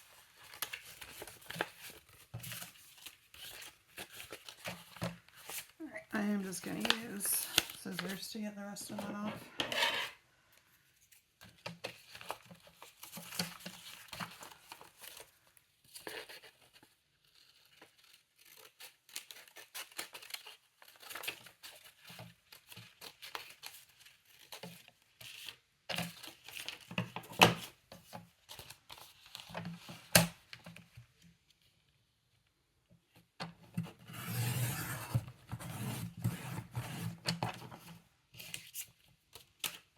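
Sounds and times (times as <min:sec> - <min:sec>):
paper rustling and tearing: 0:00.0 - 0:09.2, 0:11.0 - 0:30.2
scissors snipping paper: 0:06.3 - 0:08.2, 0:17.5 - 0:24.7.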